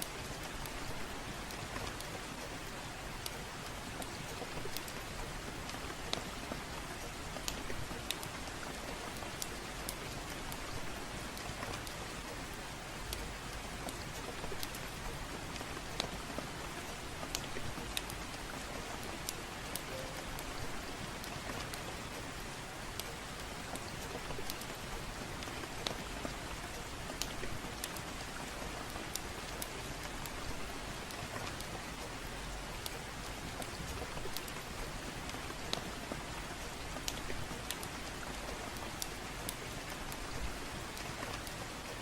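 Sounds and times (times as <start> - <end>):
gentle rain: 0.0 - 42.0
wood fire crackling: 0.0 - 42.0.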